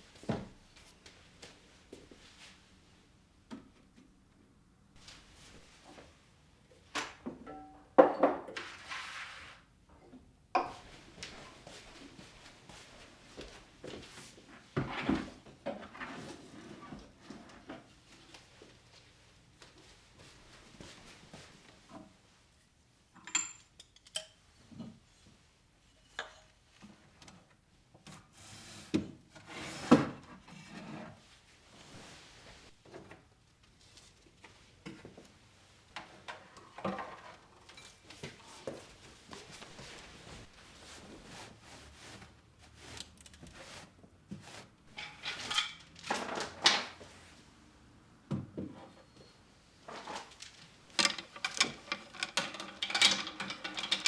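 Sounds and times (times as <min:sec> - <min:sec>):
objects rubbing and sliding: 0:08.6 - 0:09.7, 0:49.8 - 0:54.0
scraping and rustling: 0:36.2 - 0:47.4, 0:49.8 - 0:54.0
objects knocking and clinking: 0:44.9 - 0:46.8, 0:50.4 - 0:54.0.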